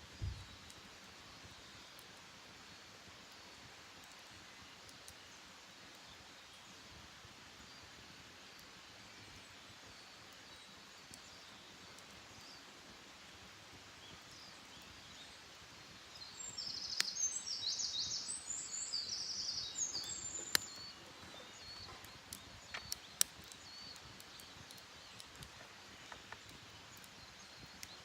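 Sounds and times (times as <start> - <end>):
faint outdoor hush: 0.0 - 28.0
faint distant bird chirps: 7.6 - 28.0
songbird trilling: 16.8 - 22.1.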